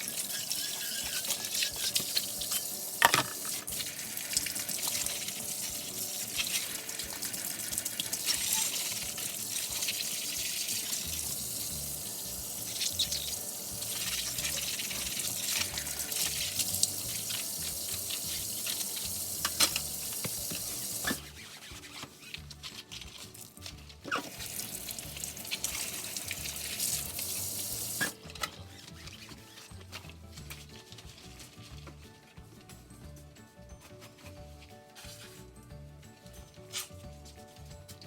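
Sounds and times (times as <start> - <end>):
dishes and utensils clinking: 0.0 - 10.9, 12.7 - 21.2
tap running into sink: 0.0 - 11.7, 12.6 - 21.2.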